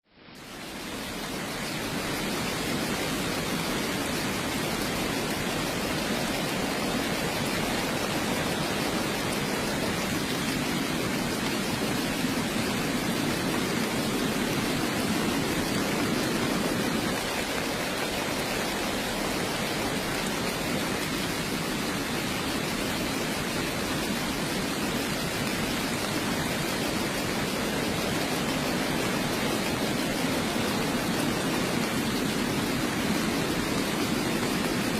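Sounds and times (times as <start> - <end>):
heavy rain: 0.1 - 34.9.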